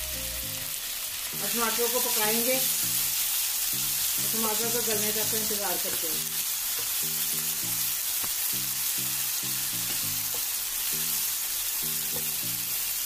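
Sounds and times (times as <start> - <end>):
background music with low notes: 0.0 - 13.0
vegetables sizzling in hot oil: 0.0 - 13.0.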